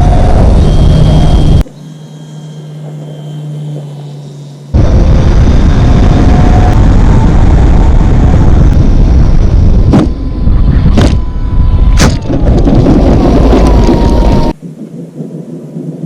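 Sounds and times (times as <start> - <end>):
heavy wind rush on microphone: 0.0 - 1.6, 4.8 - 16.0
thin motor whine: 0.0 - 12.5.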